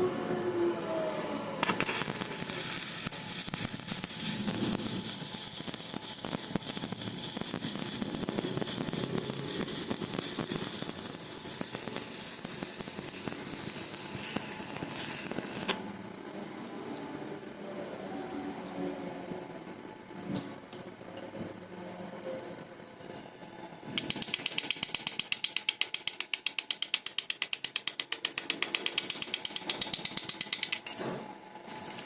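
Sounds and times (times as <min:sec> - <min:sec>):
welding arc crackling: 0:01.6 - 0:15.8, 0:24.0 - 0:30.5.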